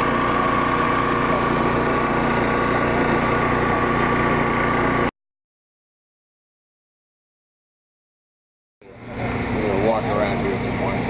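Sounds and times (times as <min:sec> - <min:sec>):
small engine idling: 0:00.0 - 0:05.1, 0:08.8 - 0:11.0.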